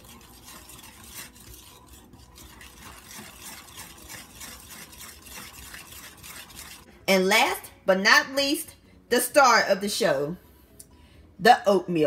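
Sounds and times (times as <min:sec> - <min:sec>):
wire whisk swishing in glass bowl: 0:00.0 - 0:06.9.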